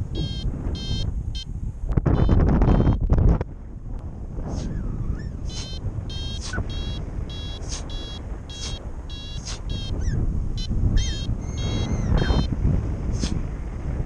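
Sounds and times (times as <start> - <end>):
wind rush on microphone: 0.0 - 14.0
variometer beeping chirps: 0.1 - 1.5, 2.1 - 3.0, 5.5 - 12.5.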